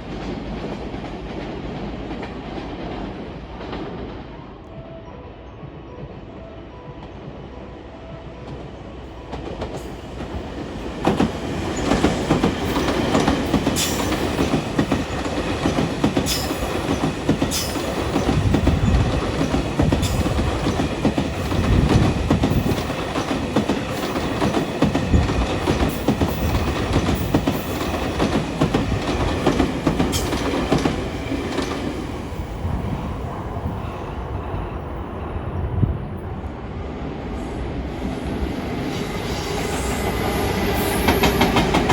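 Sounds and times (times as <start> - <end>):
train wheels clattering on rails: 8.1 - 33.0, 38.8 - 41.9
train wheel squeal: 11.0 - 31.8, 38.2 - 41.9.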